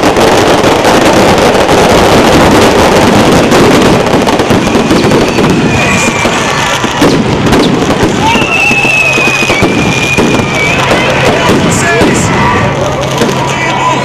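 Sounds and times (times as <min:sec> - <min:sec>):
firecrackers crackling: 0:00.0 - 0:14.0.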